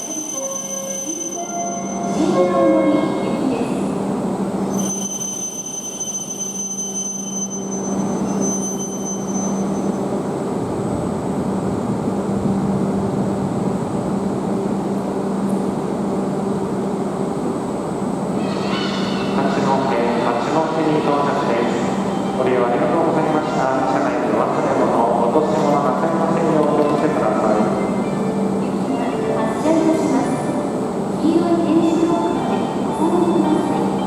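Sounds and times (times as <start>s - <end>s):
thin high whine: 4.7s - 10.1s
train rushing noise: 9.6s - 34.0s.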